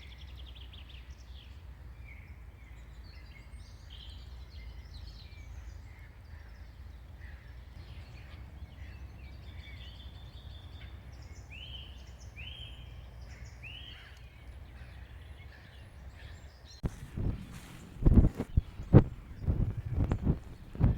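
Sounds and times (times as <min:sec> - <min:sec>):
songbirds chirping: 0:00.0 - 0:20.9
low steady rumble: 0:16.8 - 0:20.9.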